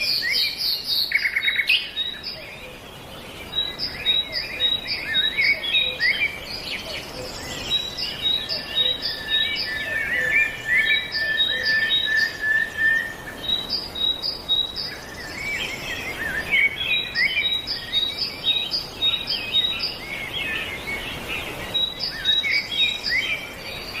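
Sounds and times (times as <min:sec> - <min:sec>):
birds chirping and singing: 0:00.0 - 0:24.0.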